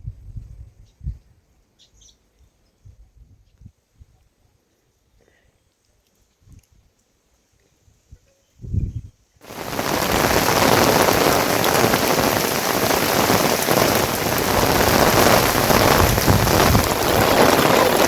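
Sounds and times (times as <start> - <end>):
heavy rain falling: 9.4 - 18.0.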